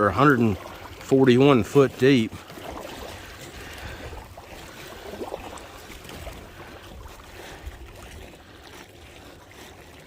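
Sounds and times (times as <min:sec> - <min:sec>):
water lapping against kayak hull: 0:00.0 - 0:10.0
wind buffeting microphone: 0:02.2 - 0:09.7.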